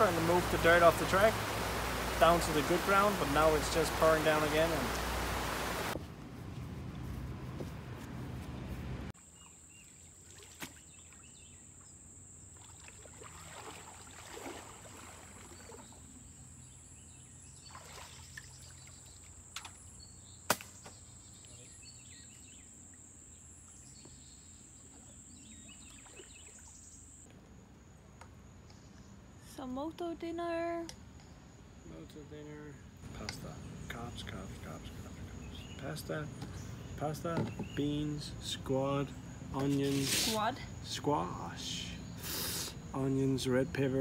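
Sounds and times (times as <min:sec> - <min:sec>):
rain hissing: 0:00.0 - 0:06.0, 0:39.7 - 0:40.5, 0:42.2 - 0:42.8.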